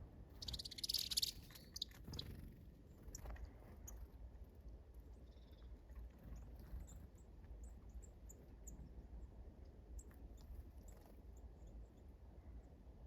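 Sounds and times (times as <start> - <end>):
low steady rumble: 0.0 - 13.0
songbird chips: 0.4 - 2.2.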